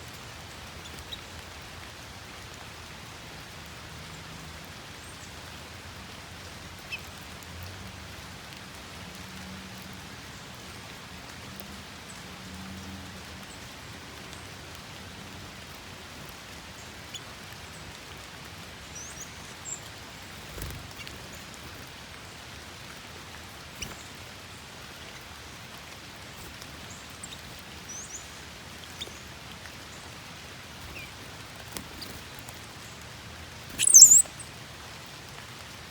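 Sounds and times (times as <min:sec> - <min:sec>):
steady rain hiss: 0:00.0 - 0:35.9
small birds chirping faintly: 0:11.9 - 0:35.2
loud high bird call: 0:33.8 - 0:34.3.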